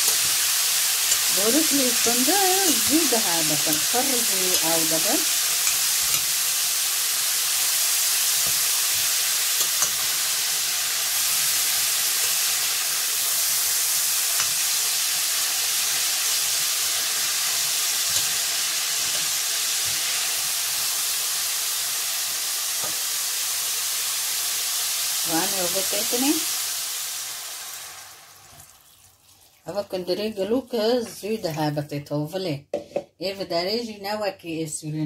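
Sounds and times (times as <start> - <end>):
meat and vegetables sizzling in oil: 0.0 - 29.6
spoon clicking against pot: 1.1 - 1.3, 9.6 - 10.0.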